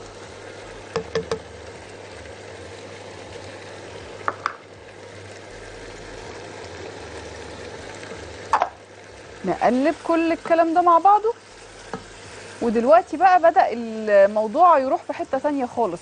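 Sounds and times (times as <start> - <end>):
food sizzling in hot oil: 0.0 - 16.0
sharp knocks: 1.0 - 1.5.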